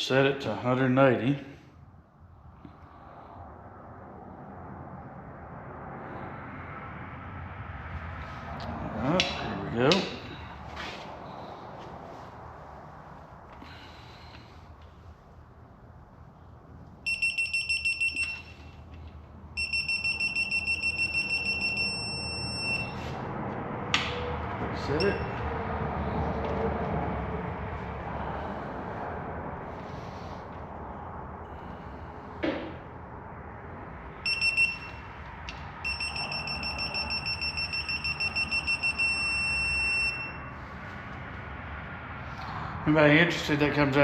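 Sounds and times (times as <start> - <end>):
gauge beeping rapidly: 17.1 - 18.6, 19.6 - 23.0, 25.0 - 25.4, 34.2 - 35.1, 35.8 - 40.5.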